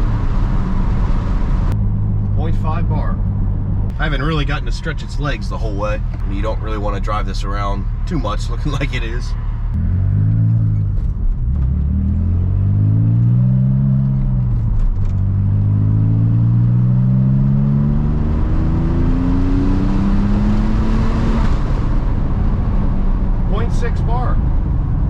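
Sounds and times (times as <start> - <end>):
car engine accelerating hard: 0.0 - 25.0.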